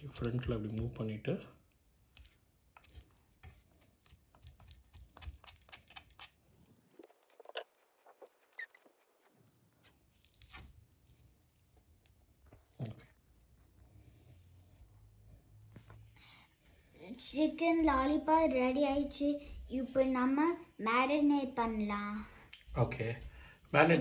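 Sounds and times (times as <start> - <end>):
raw chicken crunching and clicking: 1.6 - 6.8.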